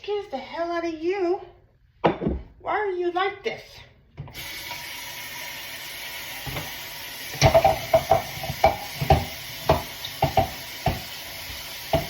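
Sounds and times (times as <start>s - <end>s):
dishes clinking: 7.4s - 11.0s.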